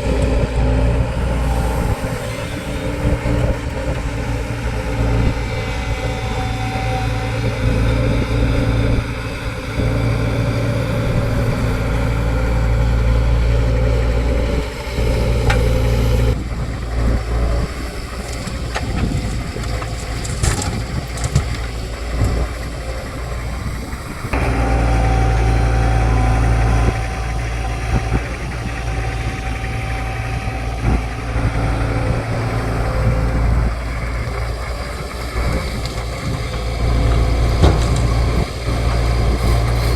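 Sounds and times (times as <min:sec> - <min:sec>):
diesel engine humming: 0:00.0 - 0:39.9
knocks and clatter: 0:17.0 - 0:22.8, 0:33.9 - 0:39.9.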